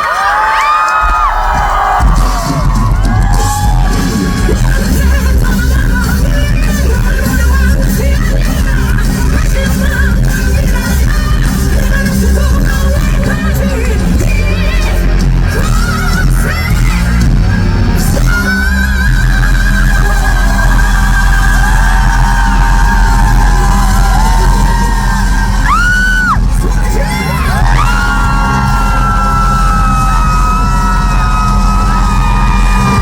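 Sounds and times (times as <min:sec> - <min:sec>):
crowd yelling: 0:00.0 - 0:05.4, 0:19.4 - 0:33.0
rock band playing: 0:00.9 - 0:33.0.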